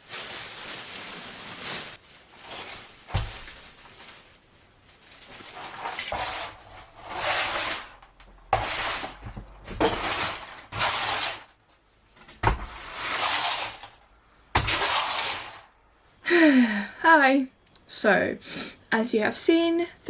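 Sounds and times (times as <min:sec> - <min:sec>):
harsh demolition strokes: 0:05.5 - 0:11.5, 0:12.4 - 0:14.0, 0:14.6 - 0:15.7.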